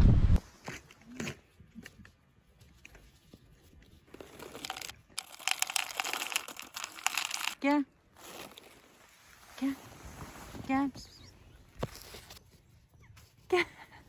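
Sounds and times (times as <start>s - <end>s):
crunching and crackling: 4.0s - 10.6s.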